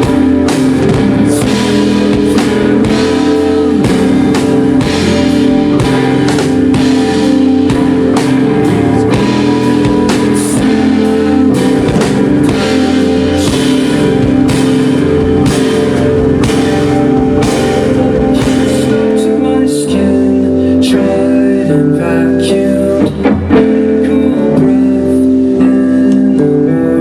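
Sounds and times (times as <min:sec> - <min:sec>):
drum kit beating: 0:00.0 - 0:19.5
rock band playing: 0:00.0 - 0:20.7
sustained guitar chords: 0:00.0 - 0:27.0.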